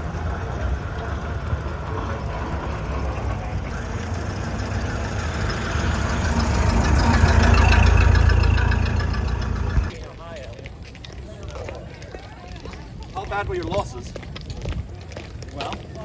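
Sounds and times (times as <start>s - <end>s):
old car engine running: 0.0s - 10.0s.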